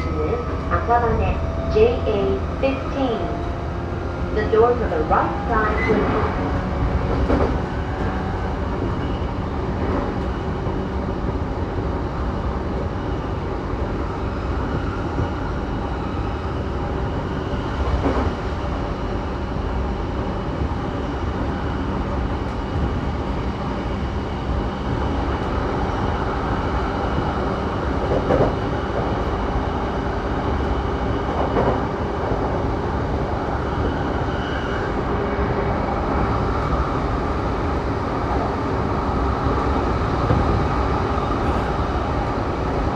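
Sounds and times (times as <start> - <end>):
train wheels rumbling on rail: 0.0 - 42.9
track knocks: 5.9 - 8.1, 40.2 - 42.9
train motor hum: 39.5 - 42.9.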